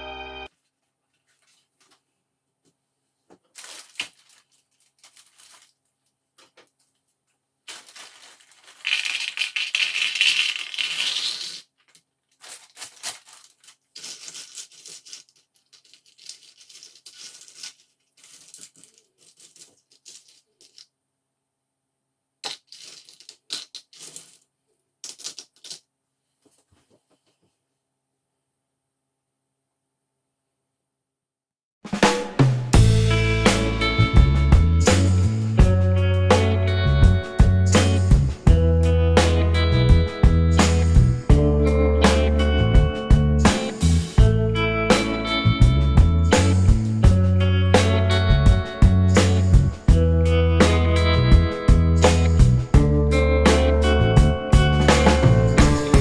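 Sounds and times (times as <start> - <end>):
plastic crinkling and tearing: 1.2 - 2.1, 3.4 - 7.0, 7.6 - 20.9, 22.4 - 25.8
puzzle pieces rattling: 7.7 - 20.9, 22.4 - 25.8.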